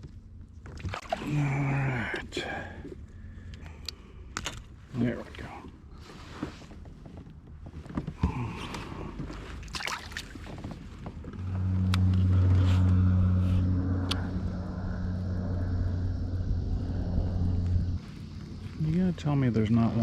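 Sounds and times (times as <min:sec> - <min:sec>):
motor humming: 0:11.2 - 0:18.6.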